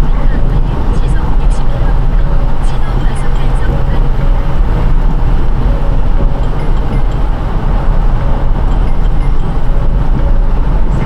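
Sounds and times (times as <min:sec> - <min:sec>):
deep low rumble: 0:00.0 - 0:11.0
tyres on wet road: 0:00.0 - 0:11.0.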